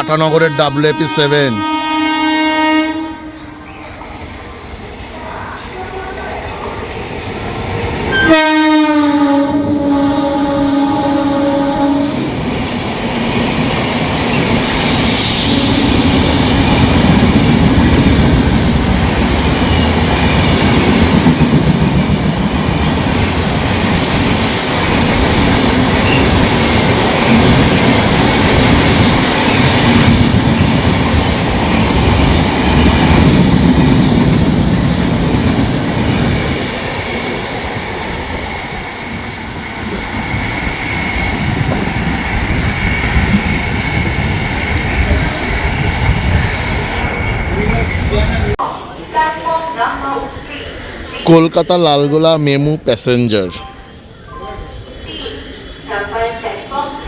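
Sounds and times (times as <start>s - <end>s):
passenger train passing at speed: 0.0s - 57.0s
train wheels running over track: 9.0s - 48.6s.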